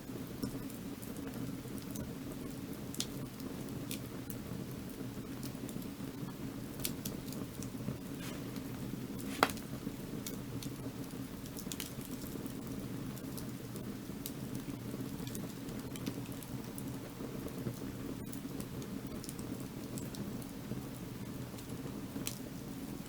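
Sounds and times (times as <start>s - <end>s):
firewood crackling: 0.2s - 23.0s
low rushing of fire: 6.0s - 23.0s.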